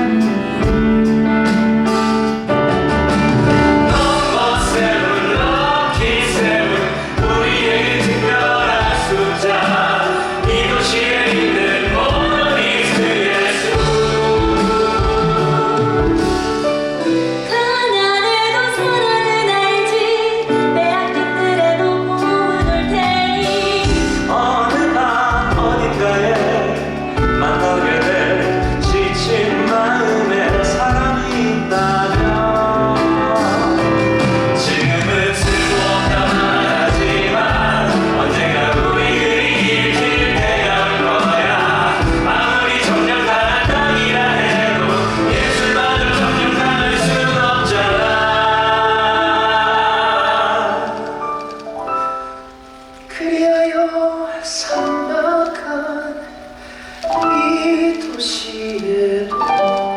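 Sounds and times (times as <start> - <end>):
show accompaniment music: 0.0 - 59.9
cast singing together: 3.5 - 17.5, 22.0 - 52.8.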